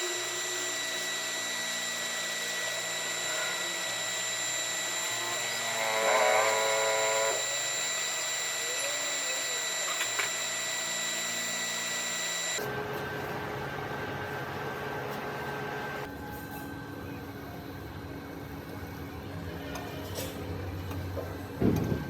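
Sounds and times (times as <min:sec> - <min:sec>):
electric power tool running: 0:00.0 - 0:12.8.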